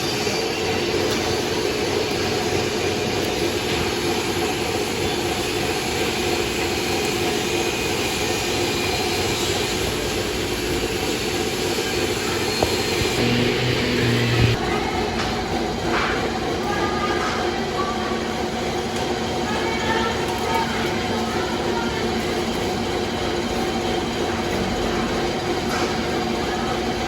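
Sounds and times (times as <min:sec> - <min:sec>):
machine roaring: 0:00.5 - 0:15.7.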